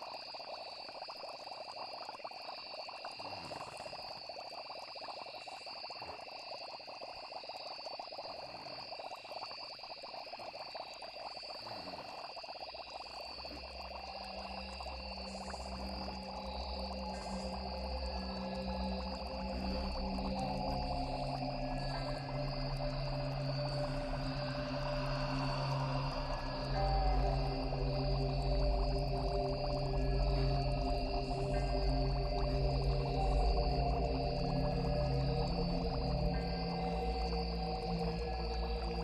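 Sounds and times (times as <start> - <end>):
frogs croaking: 0.0 - 39.0
insects chirping: 0.0 - 39.0
low musical drone: 14.0 - 39.0.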